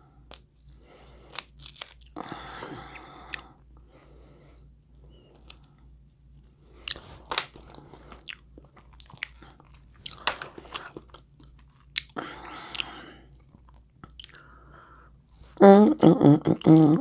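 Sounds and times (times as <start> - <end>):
crab shells cracking: 1.1 - 2.2
wet chewing and smacking: 4.9 - 14.5.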